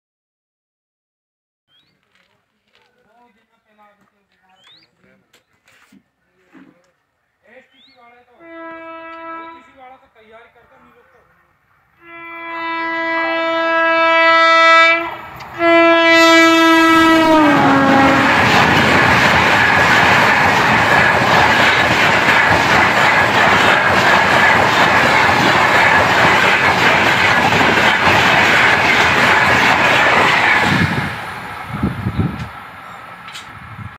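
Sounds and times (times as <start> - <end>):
locomotive horn blasts: 8.4 - 9.8, 12.0 - 18.3
train wheels clattering on rails: 17.9 - 31.3.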